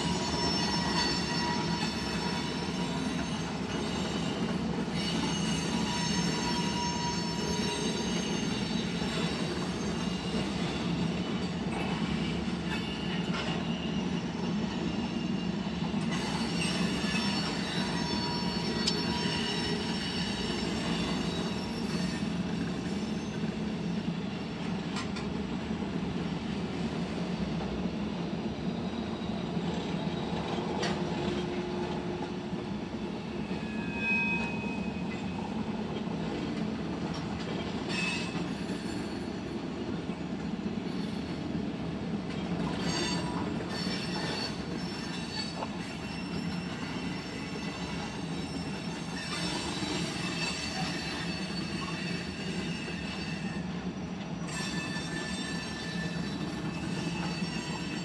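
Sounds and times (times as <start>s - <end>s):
high-pitched wheel squeal: 0.0s - 11.5s, 12.8s - 23.5s, 33.4s - 35.1s, 42.7s - 53.8s, 54.4s - 58.0s.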